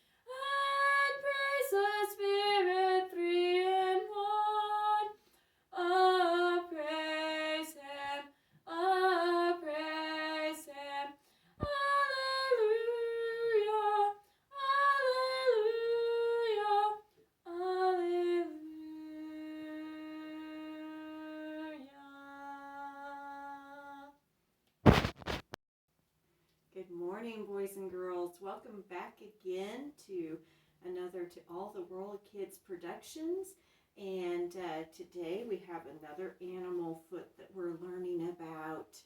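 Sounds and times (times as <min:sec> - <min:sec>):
woman singing unaccompanied: 0:00.3 - 0:24.2.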